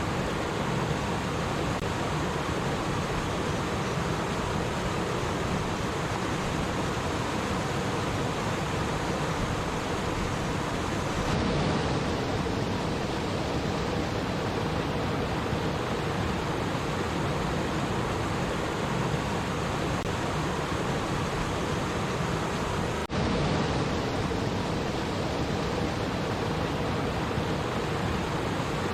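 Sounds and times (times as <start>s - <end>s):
stream water babbling: 0.0s - 28.9s.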